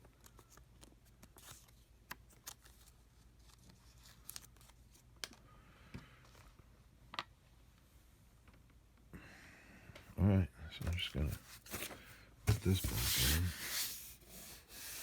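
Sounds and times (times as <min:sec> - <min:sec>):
faint clicks and taps of small parts: 0:05.2 - 0:06.4.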